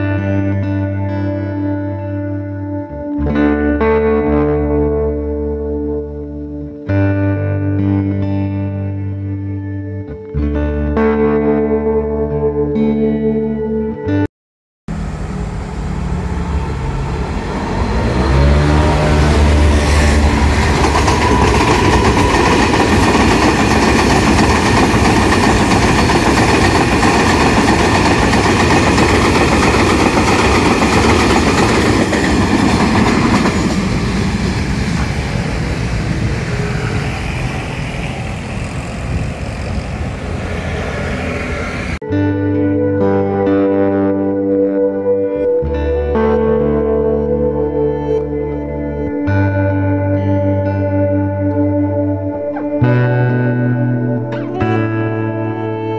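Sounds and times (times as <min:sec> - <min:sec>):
train rumbling past: 0:14.9 - 0:42.0
rising whine: 0:14.9 - 0:55.9.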